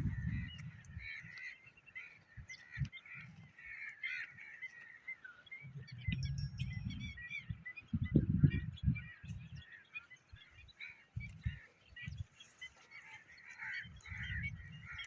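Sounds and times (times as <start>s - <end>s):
low microphone rumble: 0.0s - 1.2s, 5.6s - 9.6s
flock of birds calling: 0.0s - 15.0s.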